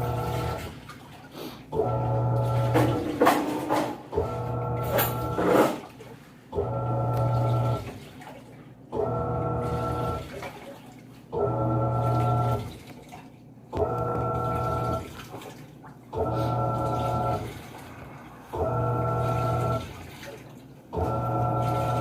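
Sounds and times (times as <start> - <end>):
washing machine motor humming: 0.0 - 22.0
water sloshing: 0.0 - 22.0.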